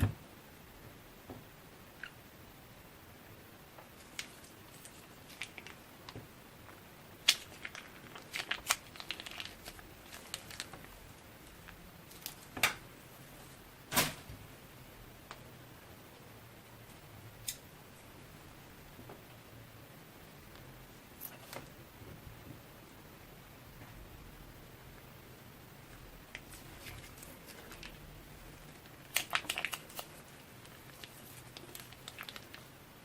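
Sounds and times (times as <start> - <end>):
slime clicking and crinkling: 4.0 - 6.2, 7.2 - 12.8, 26.2 - 32.8.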